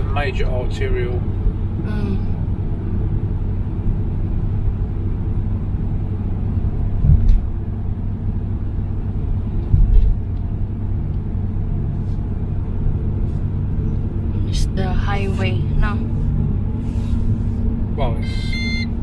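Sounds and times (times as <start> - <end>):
car rumbling on road: 0.0 - 19.0
low thumps: 6.9 - 7.5, 9.6 - 10.3.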